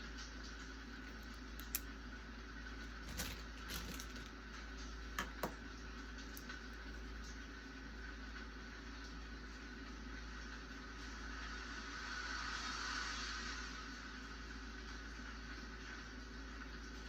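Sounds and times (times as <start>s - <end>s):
rain hiss: 11.0s - 14.5s.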